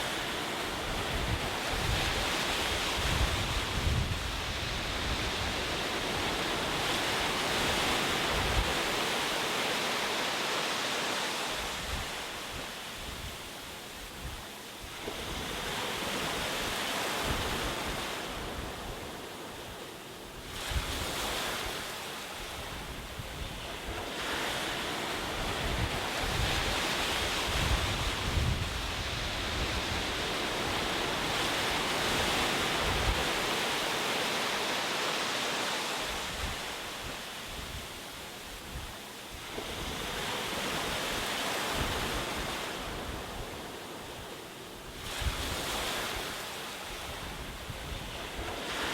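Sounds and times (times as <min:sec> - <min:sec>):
ocean waves washing onto shore: 0:00.0 - 0:48.9
wind buffeting microphone: 0:00.3 - 0:09.1, 0:22.6 - 0:33.7.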